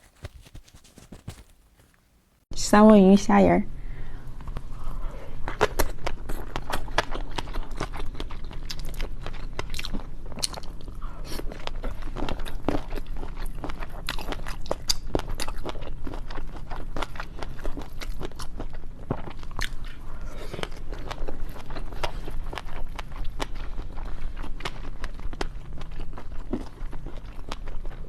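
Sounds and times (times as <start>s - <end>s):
chewing and biting seafood: 5.4s - 28.0s.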